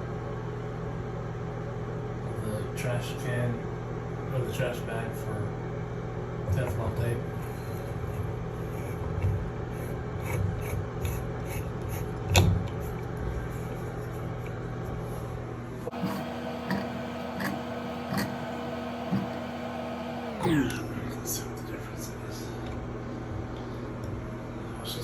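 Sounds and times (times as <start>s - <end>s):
steady background hum: 0.0s - 25.0s
tape and threads rubbing and scraping: 7.9s - 15.1s.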